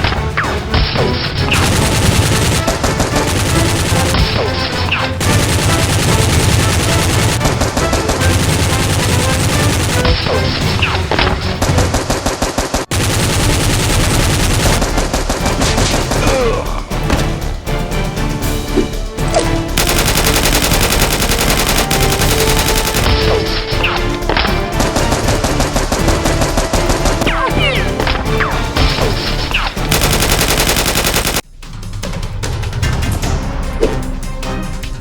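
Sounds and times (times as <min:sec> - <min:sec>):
automatic gunfire: 0:01.6 - 0:10.2, 0:11.8 - 0:16.4, 0:19.8 - 0:23.9, 0:24.7 - 0:27.7, 0:29.8 - 0:31.4.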